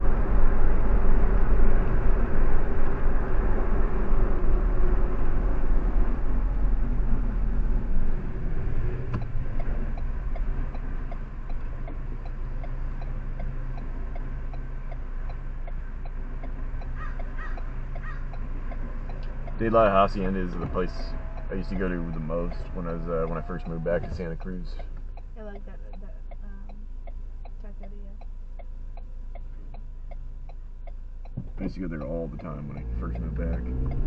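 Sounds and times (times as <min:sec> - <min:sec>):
car road and engine rumble: 0:00.0 - 0:34.0
steady ticking: 0:07.4 - 0:34.0.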